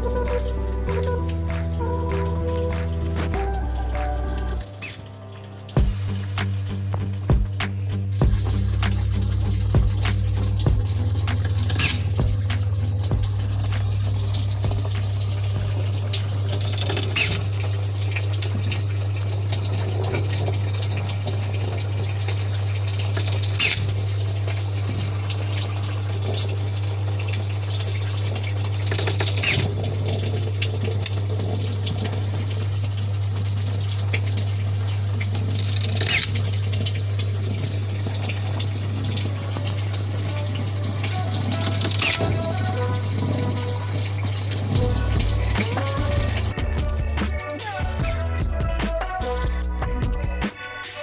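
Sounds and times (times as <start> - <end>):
running water rushing: 0.0 - 48.6
constant low hum: 0.0 - 50.4.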